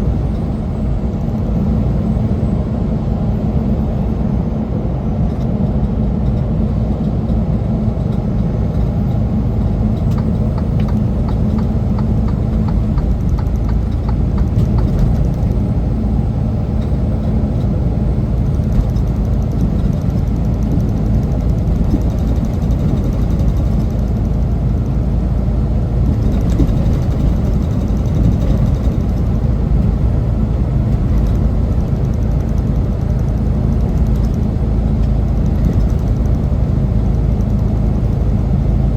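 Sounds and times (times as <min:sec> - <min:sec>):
truck engine and road rumble: 0:00.0 - 0:38.9.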